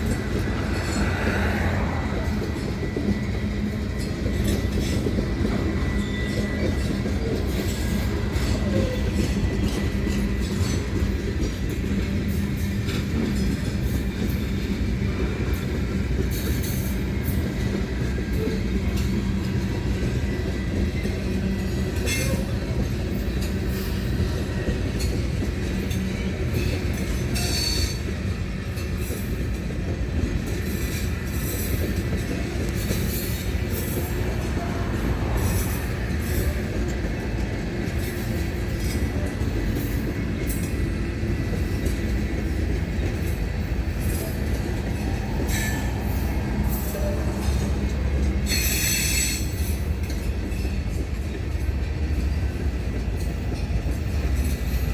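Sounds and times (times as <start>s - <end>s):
high wheel squeals: 0.0s - 11.2s, 43.2s - 50.0s
freight train rumbling past: 0.0s - 54.9s
wheels clicking over rail joints: 0.0s - 54.9s.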